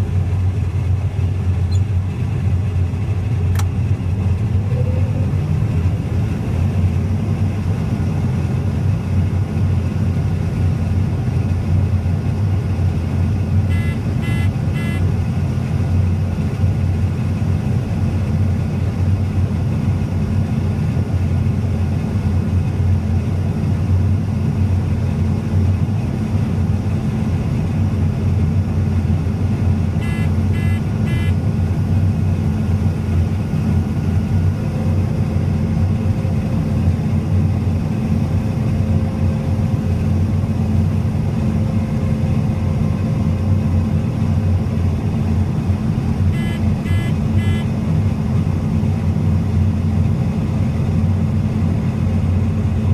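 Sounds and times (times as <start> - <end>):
machinery engine drone: 0.0 - 52.9
short high electronic beeps: 13.7 - 15.0, 30.0 - 31.4, 46.4 - 47.7.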